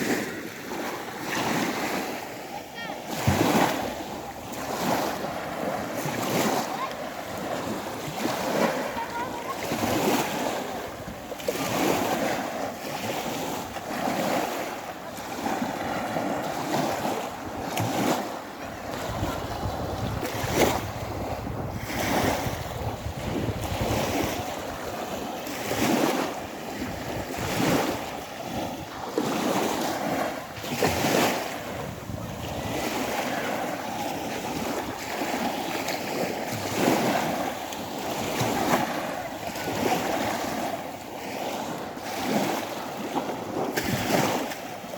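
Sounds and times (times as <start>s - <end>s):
waves breaking on shore: 0.0s - 44.9s
wind buffeting microphone: 3.2s - 35.7s.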